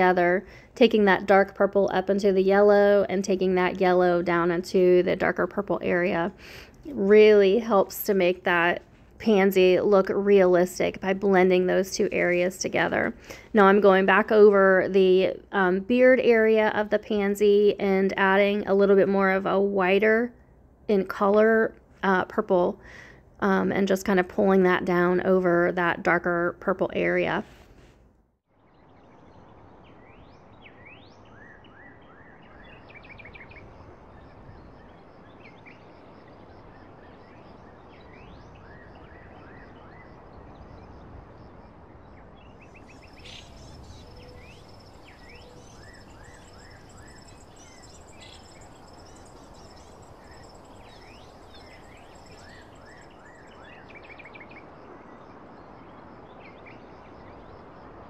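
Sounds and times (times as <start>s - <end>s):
steady background hiss: 0.0s - 26.0s, 32.3s - 58.0s
birds chirping and trilling: 42.1s - 57.6s
high insect-like tone: 42.6s - 54.3s.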